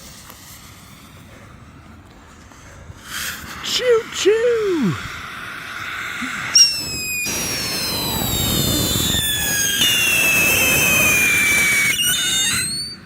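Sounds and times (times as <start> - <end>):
hissing sparks: 5.0 - 13.0
shrill descending whistles: 6.2 - 13.0
firework pops: 6.6 - 12.9.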